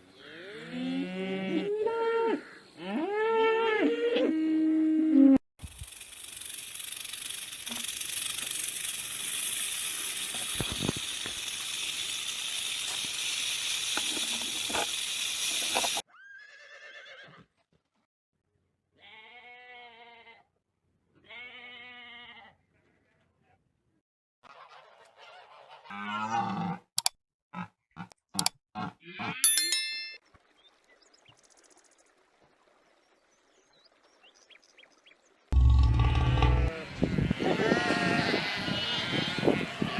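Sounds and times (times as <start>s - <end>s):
steady hissing: 5.6s - 16.0s.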